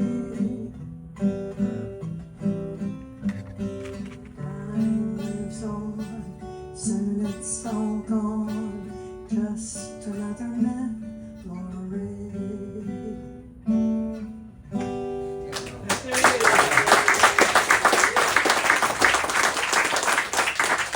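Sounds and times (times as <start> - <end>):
acoustic guitar playing: 0.0 - 15.5.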